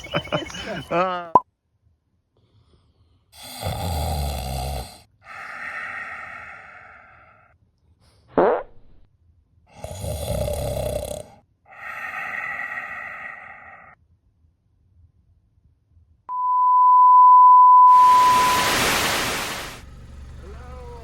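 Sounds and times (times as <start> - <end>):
loud rasping snore: 3.4 - 5.1, 9.7 - 11.4
breath out: 11.7 - 14.0
short rising whistle: 16.3 - 19.7.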